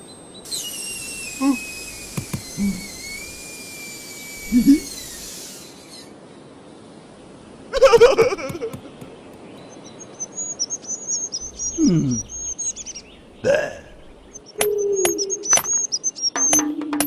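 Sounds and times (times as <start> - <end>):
birds chirping and twittering: 0.0 - 17.0
sharp clicking taps: 2.2 - 2.5, 7.9 - 9.6, 14.6 - 17.0
brief vocal burst: 11.6 - 12.4.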